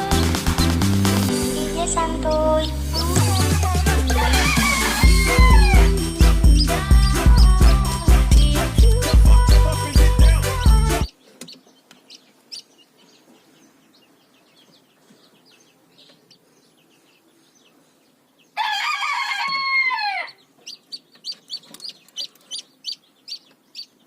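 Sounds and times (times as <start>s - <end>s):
chicks peeping: 0.0s - 24.0s
rooster crowing: 3.8s - 6.0s, 18.6s - 20.4s.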